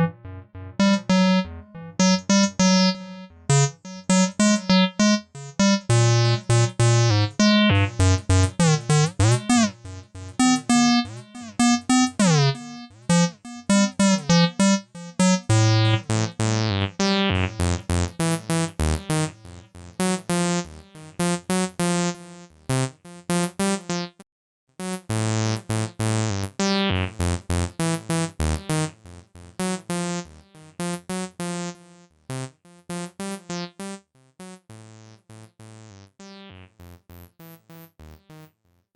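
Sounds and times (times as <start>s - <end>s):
acid synth bassline: 0.0s - 19.4s.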